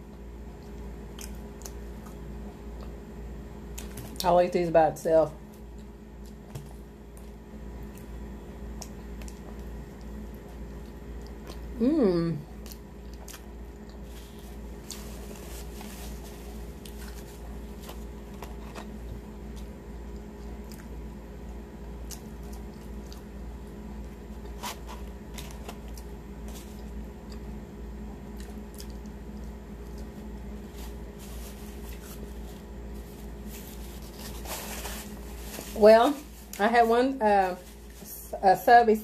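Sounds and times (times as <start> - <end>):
steady low hum: 0.0 - 39.0
chewing clicks and crunches: 0.6 - 2.2, 19.5 - 21.0, 22.0 - 23.4, 28.3 - 30.1.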